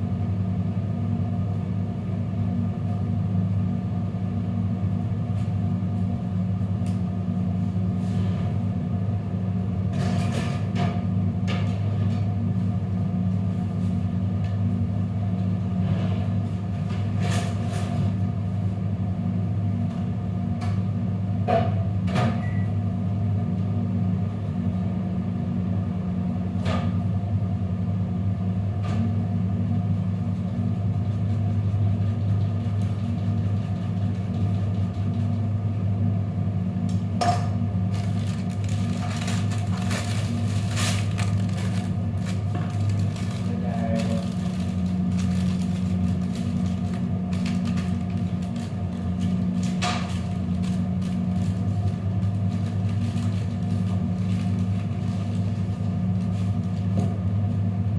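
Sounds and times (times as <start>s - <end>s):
low machine hum: 0.0s - 57.9s.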